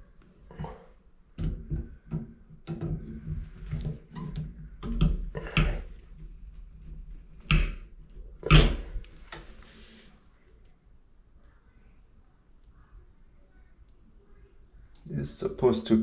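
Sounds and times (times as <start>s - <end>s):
tools knocking and scraping: 1.4s - 6.0s.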